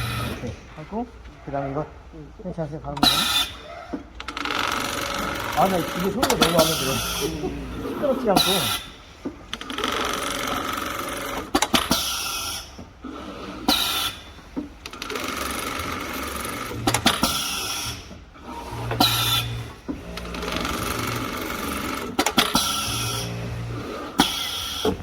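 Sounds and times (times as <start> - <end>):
sewing machine stitching: 0.0 - 0.5, 4.2 - 8.9, 14.9 - 25.0
sewing machine sharp clicks: 14.8 - 25.0.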